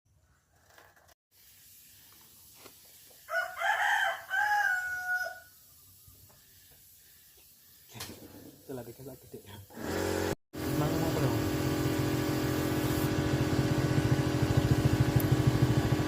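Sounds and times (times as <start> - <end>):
rooster crowing: 3.3 - 5.6.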